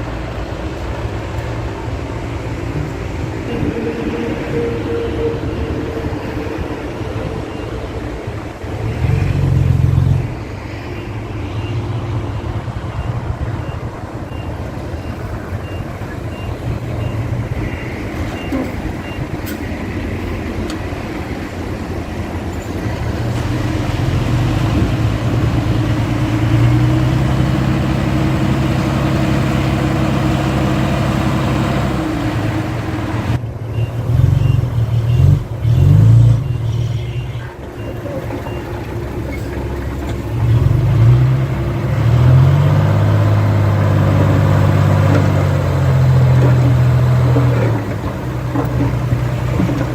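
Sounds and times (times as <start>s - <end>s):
heavy machine diesel engines: 0.0s - 49.9s
faint reversing beeper: 2.8s - 19.8s, 33.6s - 39.8s.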